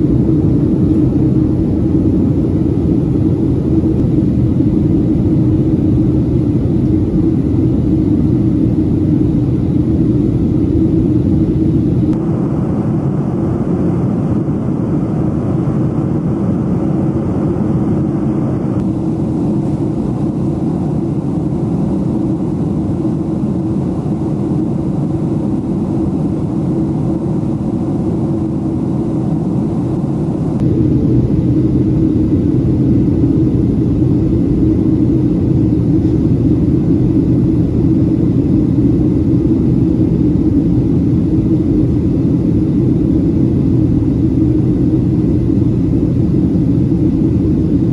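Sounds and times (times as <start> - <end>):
aircraft cabin engine roar: 0.0 - 47.9.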